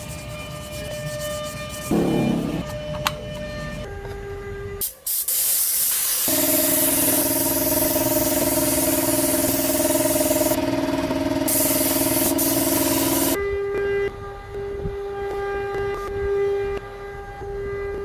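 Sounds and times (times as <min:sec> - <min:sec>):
spray gun hissing: 0:04.8 - 0:13.4.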